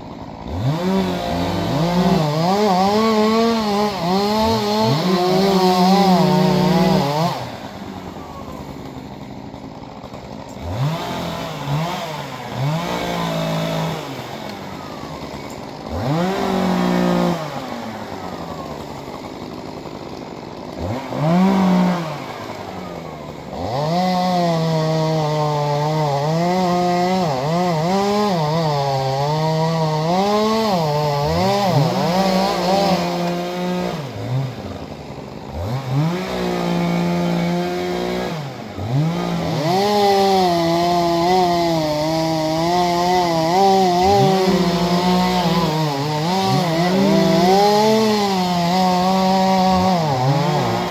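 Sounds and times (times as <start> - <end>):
chainsaw cutting tree limbs: 0.0 - 50.9.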